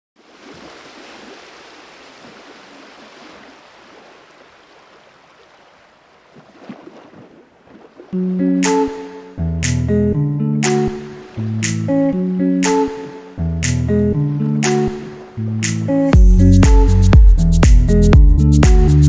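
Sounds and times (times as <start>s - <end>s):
water rushing: 0.2s - 9.3s, 10.6s - 13.5s
music: 8.2s - 19.0s.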